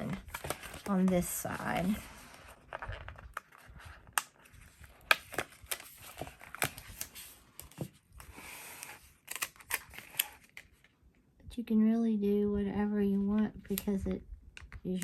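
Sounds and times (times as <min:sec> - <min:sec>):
paper rustling: 0:00.0 - 0:10.9.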